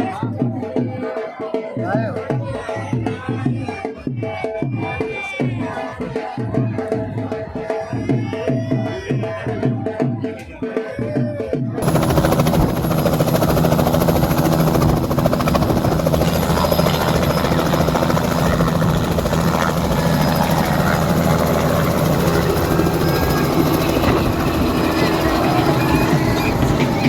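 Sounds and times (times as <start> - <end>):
helicopter engine hum: 11.8 - 27.0
helicopter rotor chop: 11.8 - 27.0.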